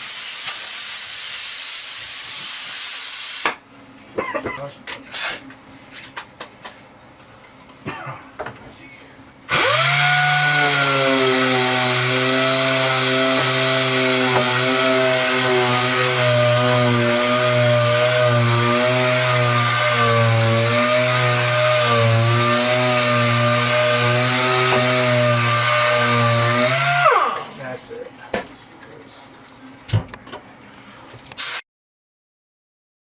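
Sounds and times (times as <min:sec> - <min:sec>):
electric power tool running: 0:09.5 - 0:27.6.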